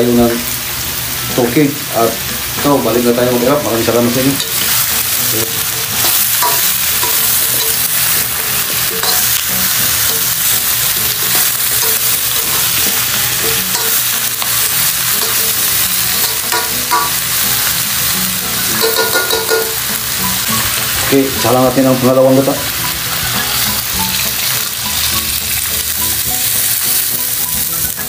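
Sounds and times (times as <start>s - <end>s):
papaya sizzling in oil: 0.0s - 28.0s
spatula scraping and knocking pan: 4.3s - 17.2s, 18.7s - 21.0s.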